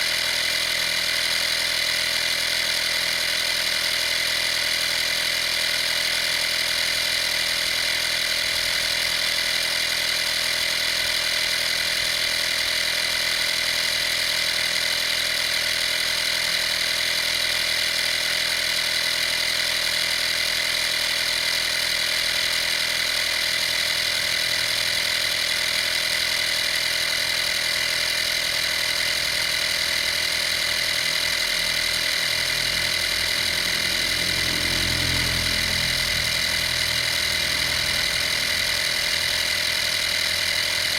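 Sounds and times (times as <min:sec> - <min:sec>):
air compressor humming: 0:00.0 - 0:40.9.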